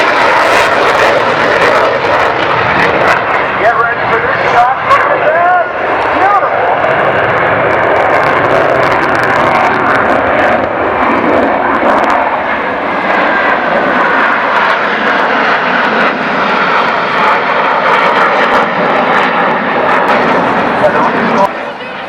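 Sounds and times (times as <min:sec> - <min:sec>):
aircraft flying over: 0:00.0 - 0:22.0.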